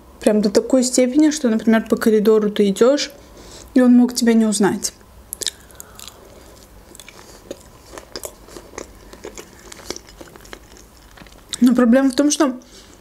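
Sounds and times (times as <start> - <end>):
person chewing fruit: 5.3 - 13.0.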